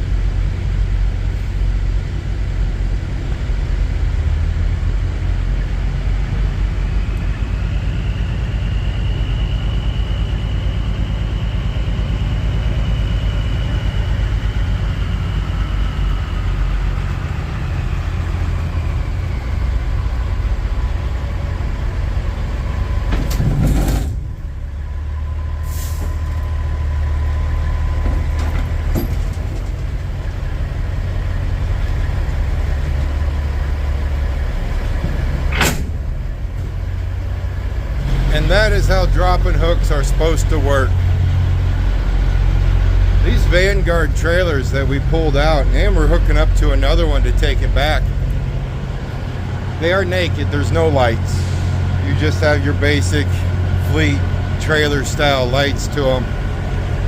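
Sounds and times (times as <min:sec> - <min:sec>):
diesel truck engine running: 0:00.0 - 0:57.0
air brake hiss: 0:25.6 - 0:26.3, 0:51.4 - 0:51.9.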